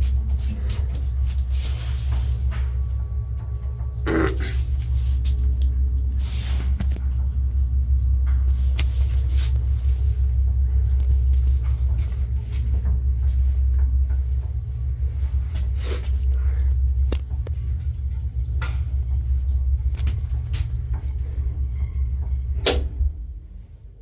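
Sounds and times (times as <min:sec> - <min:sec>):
elevator drive rumble: 0:00.0 - 0:24.0
elevator stopping clunk: 0:17.3 - 0:24.0
elevator clicks and knocks: 0:19.9 - 0:23.4.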